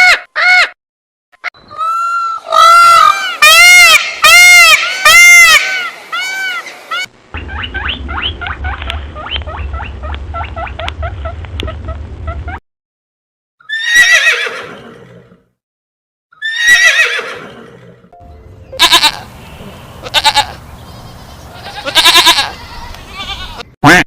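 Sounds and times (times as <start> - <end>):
bleat-like calls: 18.8 - 19.3, 20.0 - 24.0.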